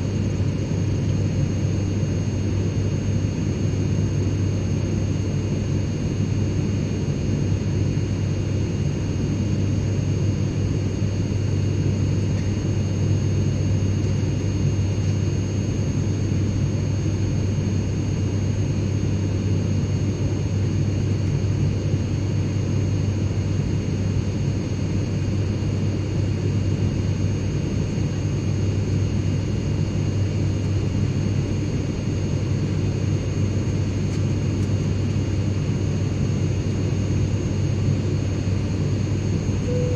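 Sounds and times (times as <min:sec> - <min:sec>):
faint high-pitched whines: 0:39.6 - 0:39.9.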